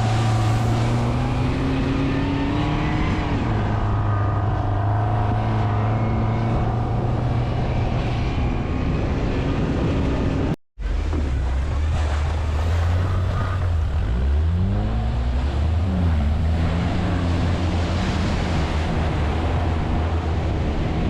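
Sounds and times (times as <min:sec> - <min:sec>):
quad bike engine revving: 0:10.9 - 0:21.0
wind noise on microphone: 0:14.9 - 0:21.0.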